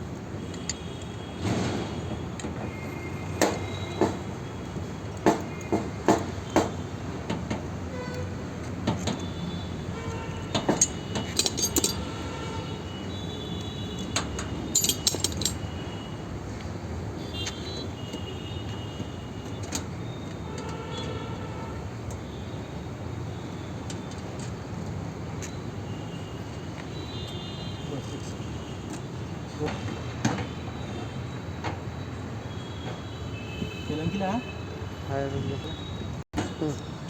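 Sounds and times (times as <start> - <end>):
metal tools clinking on copper pipe: 10.5 - 12.2, 14.1 - 15.7.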